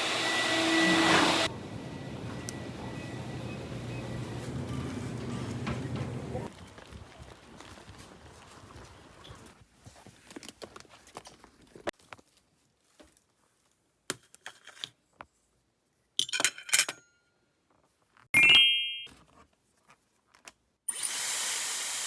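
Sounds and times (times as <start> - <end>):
hiss: 21.0 - 22.0.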